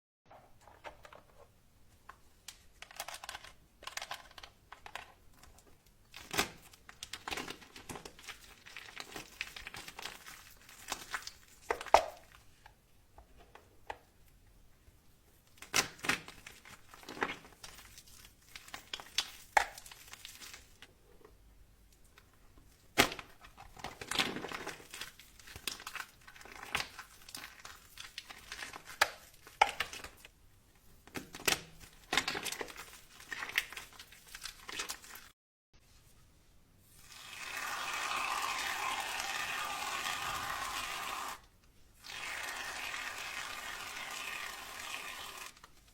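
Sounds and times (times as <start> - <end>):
soap crumbling and scraping: 0.3 - 14.0, 15.4 - 21.4, 22.0 - 35.4.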